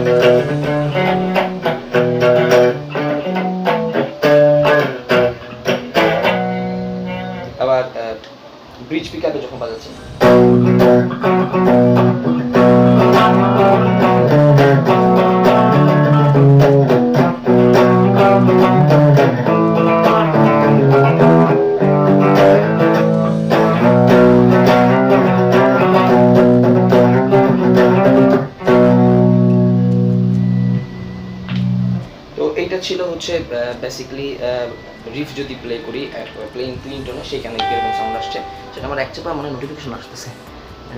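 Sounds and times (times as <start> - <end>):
electric guitar clean riff: 0.0 - 7.6, 9.9 - 32.3, 37.4 - 39.2.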